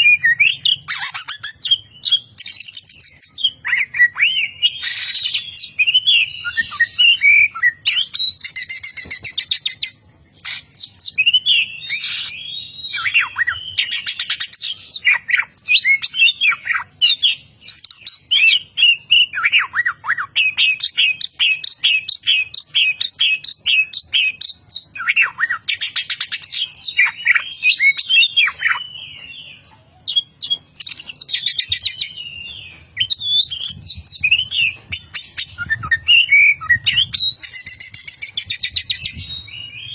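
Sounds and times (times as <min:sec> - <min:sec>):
bird singing whistled notes: 0:00.0 - 0:09.9, 0:10.5 - 0:39.9.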